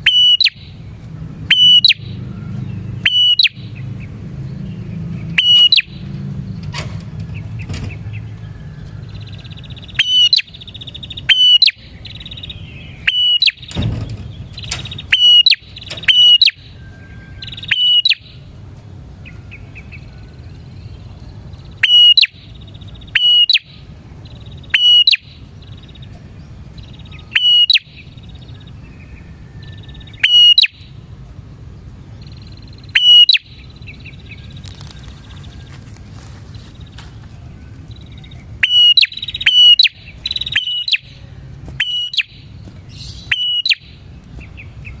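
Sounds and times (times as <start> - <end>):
bird chirping sharply: 0.0 - 18.5, 19.2 - 31.1, 31.8 - 45.0
bird trilling rapidly: 0.0 - 31.1, 32.0 - 45.0.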